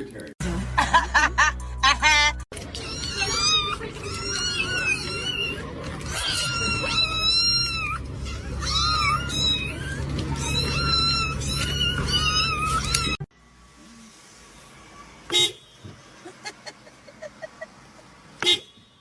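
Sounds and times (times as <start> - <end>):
cats meowing: 2.6 - 13.2.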